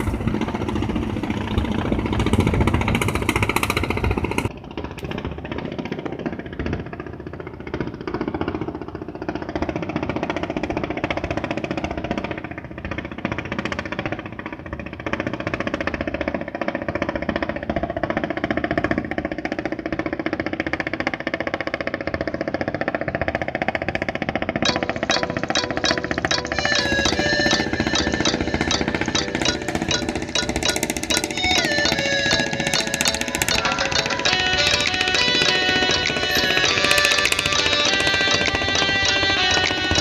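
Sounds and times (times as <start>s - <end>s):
boat engine chugging: 0.0s - 40.0s.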